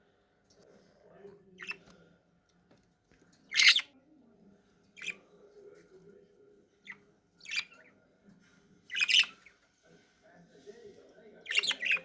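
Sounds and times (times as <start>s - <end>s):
budgies chirping: 1.6s - 1.9s, 3.5s - 3.9s, 5.0s - 5.2s, 6.8s - 8.0s, 8.8s - 9.7s, 11.3s - 12.0s.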